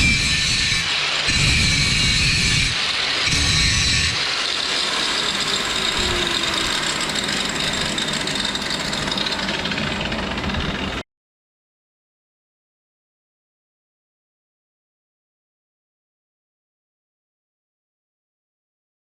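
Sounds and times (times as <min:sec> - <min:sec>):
welding arc crackling and sizzling: 0:00.0 - 0:10.3.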